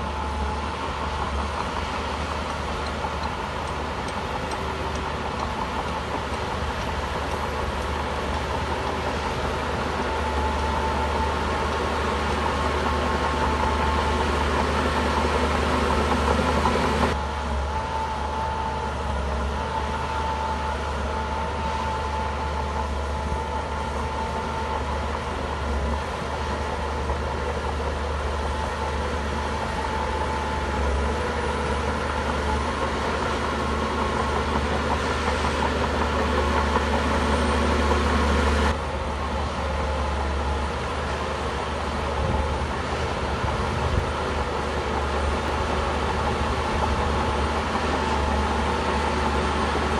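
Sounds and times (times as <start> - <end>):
bulldozer diesel engine running: 0.0 - 49.9.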